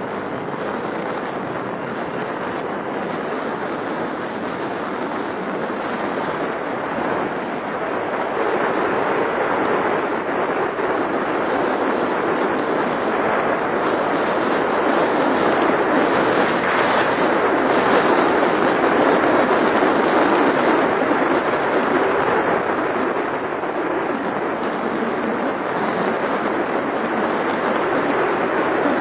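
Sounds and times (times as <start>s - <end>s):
vehicle wind and road rush: 0.0s - 29.0s.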